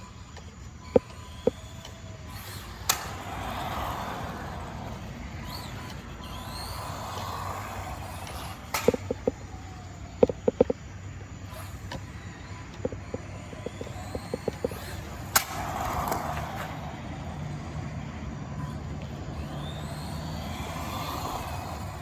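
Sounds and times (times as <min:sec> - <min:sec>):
toy car motor whining: 0:00.0 - 0:22.0
sharp knocks: 0:10.2 - 0:10.8.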